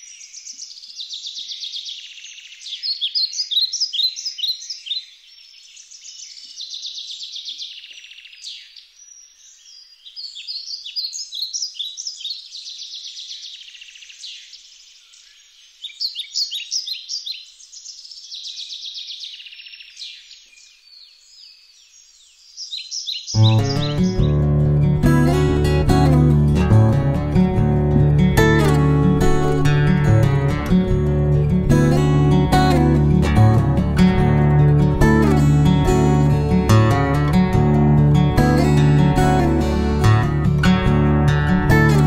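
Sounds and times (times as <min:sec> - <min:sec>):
songbird trilling and chirping: 0:00.0 - 0:24.4.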